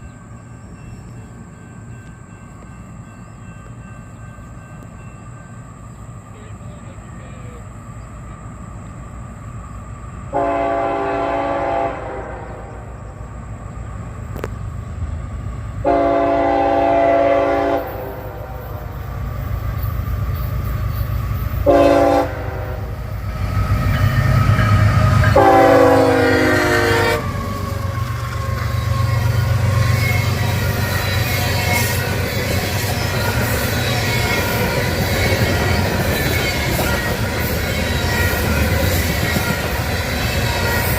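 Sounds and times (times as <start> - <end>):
low train rumble: 0.0 - 40.9
locomotive air horn: 10.3 - 12.9, 15.8 - 18.9, 21.6 - 23.1, 24.1 - 40.9.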